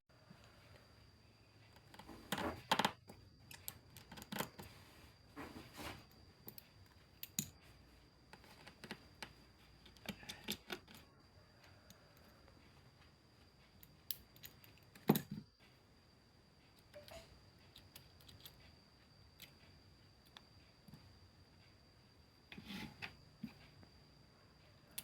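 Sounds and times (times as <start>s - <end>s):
faint high whine: 11.1s - 25.0s.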